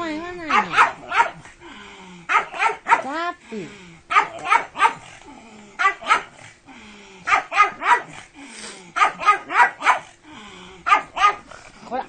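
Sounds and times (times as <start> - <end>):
dog barking: 0.5 - 1.4, 2.3 - 3.2, 4.1 - 5.1, 5.8 - 6.4, 7.3 - 8.2, 9.0 - 10.1, 10.8 - 11.5.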